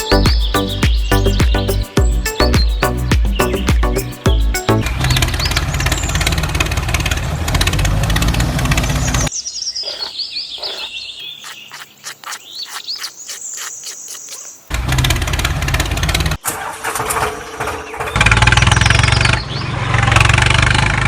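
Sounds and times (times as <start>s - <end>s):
high bird chirps: 0.0s - 6.4s, 9.0s - 14.7s.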